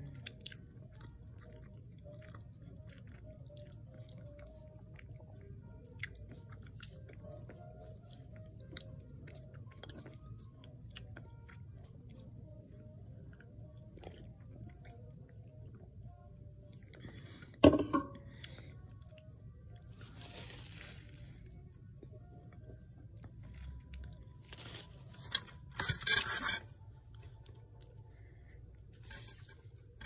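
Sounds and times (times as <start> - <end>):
person chewing: 0.2 - 12.3, 13.3 - 15.8.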